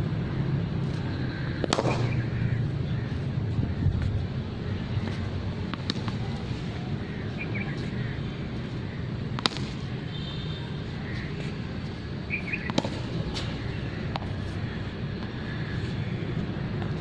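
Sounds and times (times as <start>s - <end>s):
outdoor background hum: 0.0s - 17.0s
cricket bat striking ball: 1.6s - 2.2s, 9.4s - 9.8s, 12.6s - 13.1s.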